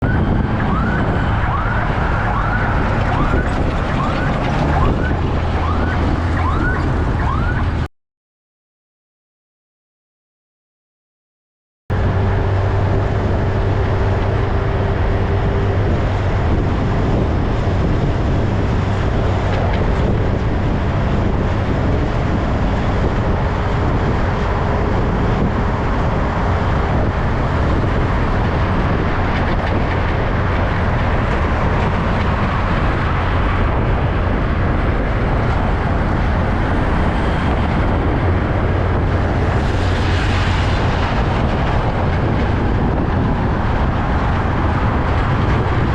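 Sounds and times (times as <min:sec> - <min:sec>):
heavy truck engine humming: 0:00.0 - 0:07.9, 0:11.9 - 0:45.9.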